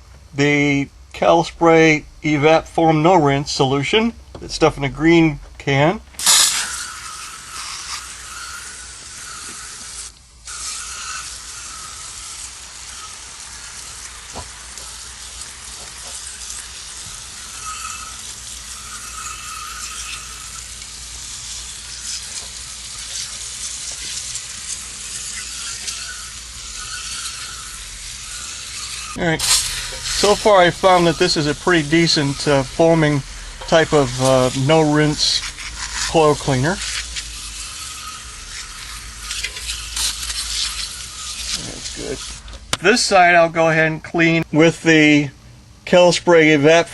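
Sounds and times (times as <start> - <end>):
aerosol can spraying hiss: 6.2 - 42.4.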